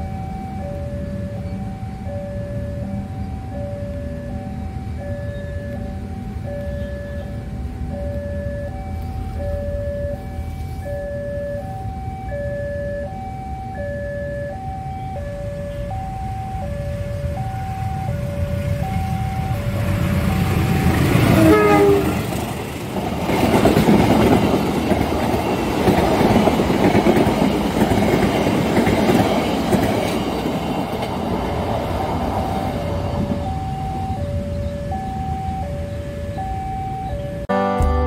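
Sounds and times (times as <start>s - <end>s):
level crossing alarm ding-dong: 0.0s - 19.8s, 33.3s - 37.9s
train wheels rumbling and clattering: 17.0s - 36.6s
locomotive horn blast: 21.1s - 22.4s, 37.5s - 38.0s.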